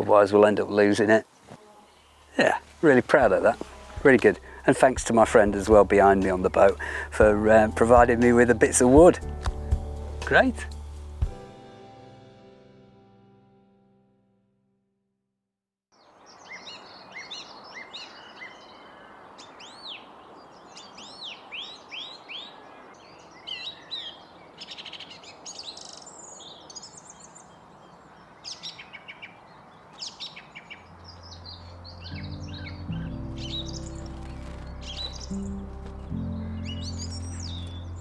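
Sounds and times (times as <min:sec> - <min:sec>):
small songbirds chirping: 0:00.0 - 0:11.4, 0:16.0 - 0:38.0
steady outdoor hiss: 0:00.0 - 0:12.3, 0:16.0 - 0:38.0
low music notes: 0:02.8 - 0:14.4, 0:31.0 - 0:38.0.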